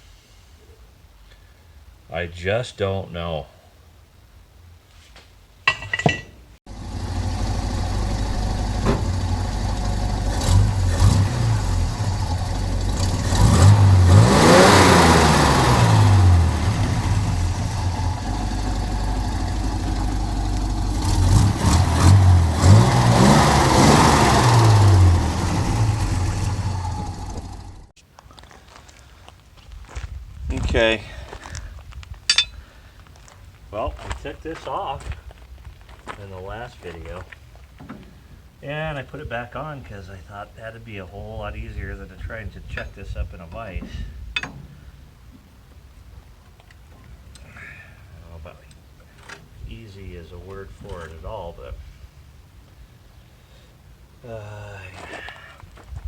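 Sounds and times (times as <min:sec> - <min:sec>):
small engine running: 0:06.7 - 0:27.9.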